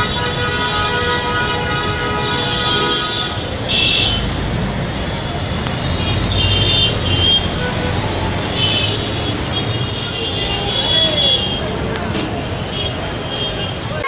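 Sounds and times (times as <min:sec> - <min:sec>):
vehicle horn: 0:00.0 - 0:04.3, 0:06.0 - 0:11.6
traffic noise: 0:00.0 - 0:14.0.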